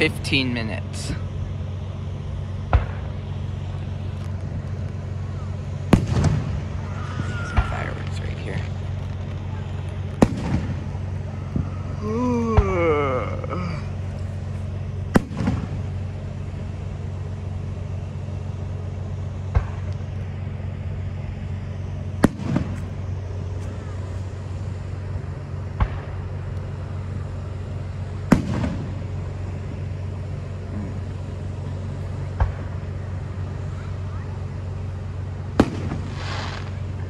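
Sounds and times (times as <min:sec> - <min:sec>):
steady low hum: 0:00.0 - 0:37.0
fireworks bangs: 0:05.9 - 0:12.0, 0:15.0 - 0:16.1, 0:22.2 - 0:24.1, 0:28.2 - 0:29.2, 0:35.6 - 0:36.9.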